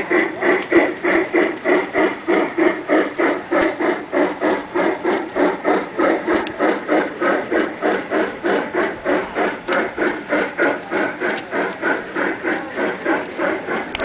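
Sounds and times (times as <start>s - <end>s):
model steam locomotive chuffing: 0.0s - 14.0s.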